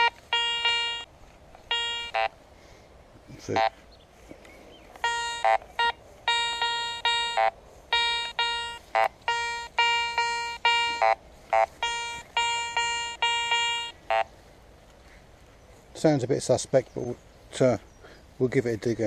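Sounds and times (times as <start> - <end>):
short high blips: 0.0 - 1.1, 1.7 - 2.3, 5.0 - 14.3
metal detector beeping: 0.0 - 2.4, 5.0 - 14.3.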